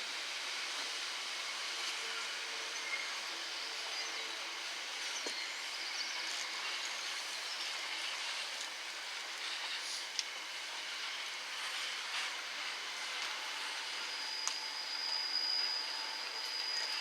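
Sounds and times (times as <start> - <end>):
train rushing on rails: 0.0 - 17.0.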